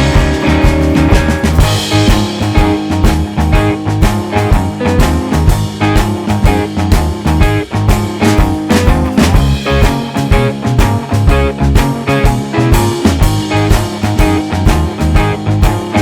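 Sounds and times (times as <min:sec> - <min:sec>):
electric guitar: 0:00.0 - 0:16.0
steady drum beat: 0:00.0 - 0:16.0.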